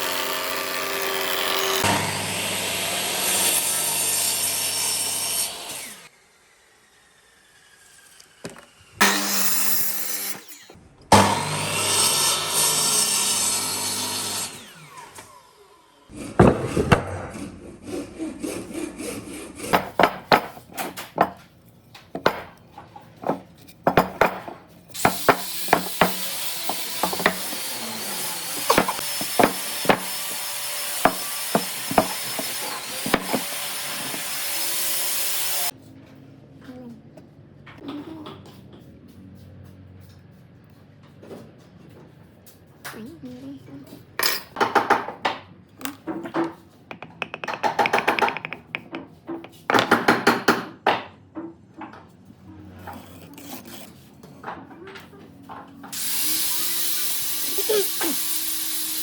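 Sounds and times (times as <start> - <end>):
wood being sawn: 0.0 - 6.6, 16.1 - 20.4, 25.0 - 35.7, 52.8 - 54.0, 55.9 - 59.0
sharp knocks: 28.6 - 30.4, 31.0 - 34.3, 46.9 - 51.1.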